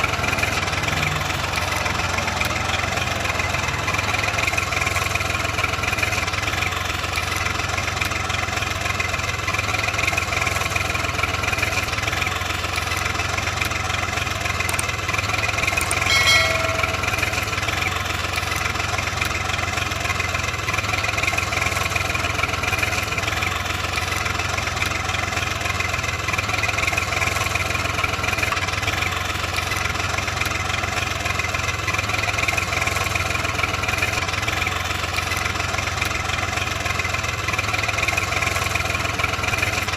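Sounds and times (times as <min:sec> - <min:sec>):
engine idling: 0:00.0 - 0:39.9
brief high-pitched tone: 0:15.8 - 0:17.9.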